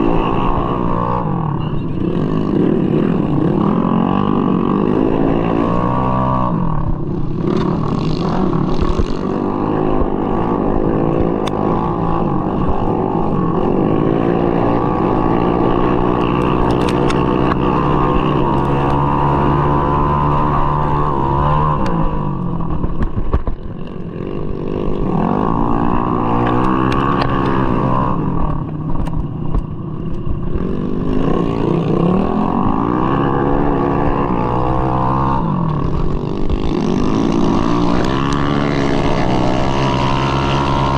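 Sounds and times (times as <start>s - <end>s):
scooter engine revving: 0.0s - 40.9s.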